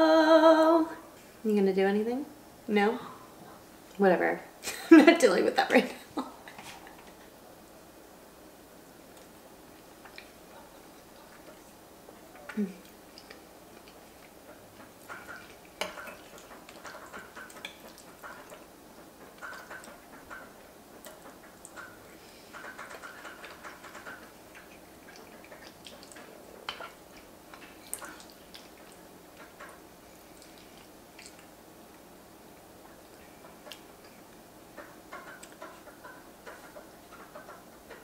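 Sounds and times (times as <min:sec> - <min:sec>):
person chewing: 0:11.0 - 0:18.7, 0:21.0 - 0:32.0.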